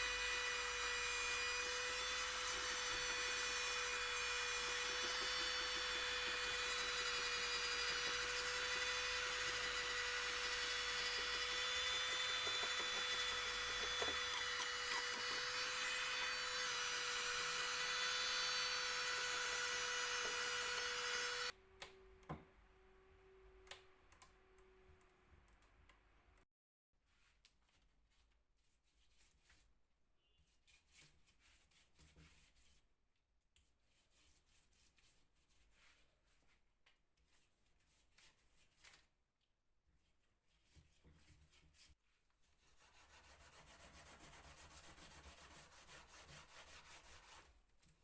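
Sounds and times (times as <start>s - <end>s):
electric power tool whining: 0.0s - 21.5s.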